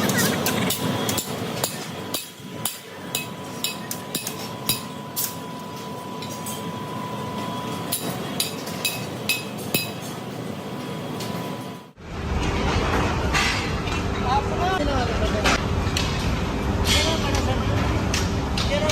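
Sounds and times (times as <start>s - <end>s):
thin steady whine: 0.0s - 12.3s
factory machine noise: 0.0s - 18.9s
steel striking steel: 0.7s - 5.4s.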